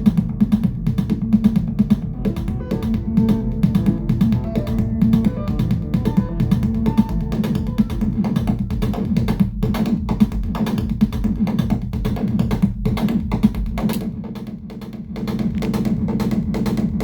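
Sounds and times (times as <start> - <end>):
sustained low synth line: 0.0 - 8.0
sharp percussive synth hits: 0.0 - 17.0.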